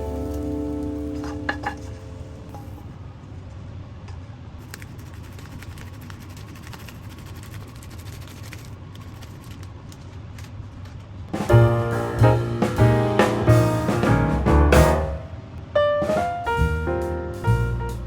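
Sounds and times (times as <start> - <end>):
piano music: 0.0 - 2.8, 11.5 - 18.0
low steady hum: 0.0 - 3.7.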